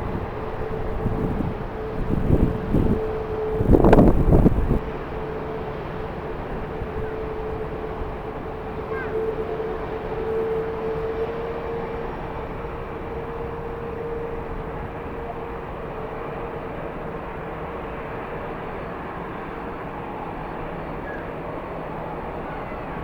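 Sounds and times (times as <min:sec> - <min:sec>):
strong wind rushing: 0:00.0 - 0:04.9
distant jet airliner engine: 0:00.0 - 0:23.0.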